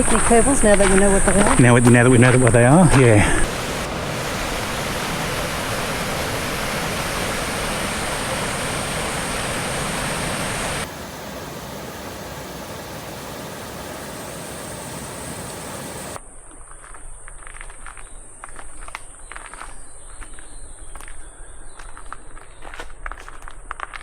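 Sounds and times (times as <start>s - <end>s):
creek water rushing: 0.0s - 16.2s
thin high whine: 0.0s - 17.0s.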